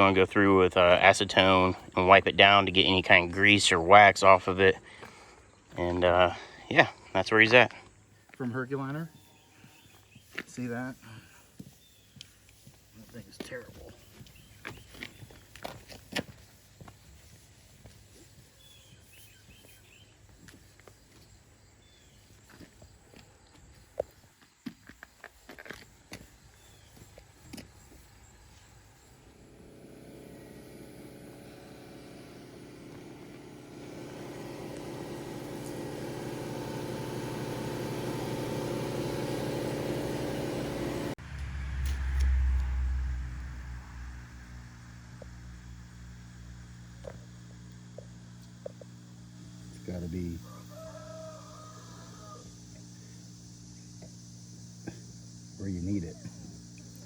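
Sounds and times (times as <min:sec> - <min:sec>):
low hum: 0:28.6 - 0:50.5.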